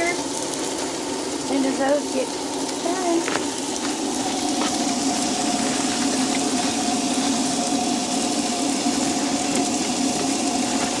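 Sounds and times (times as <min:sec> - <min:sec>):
food sizzling on griddle: 0:00.0 - 0:11.0
steady low hum: 0:00.0 - 0:11.0.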